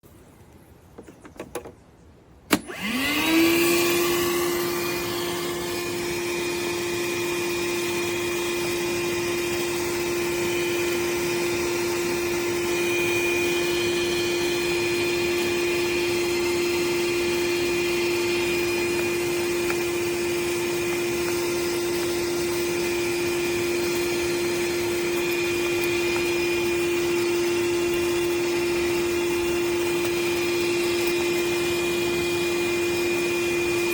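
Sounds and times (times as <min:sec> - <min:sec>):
vacuum switch click: 0:02.5 - 0:03.0
vacuum motor running: 0:02.5 - 0:33.9.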